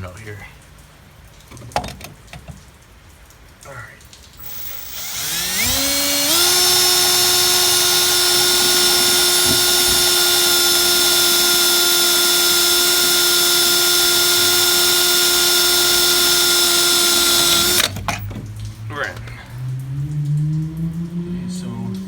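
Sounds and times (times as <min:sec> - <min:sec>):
electric power tool whining: 0:04.4 - 0:18.0.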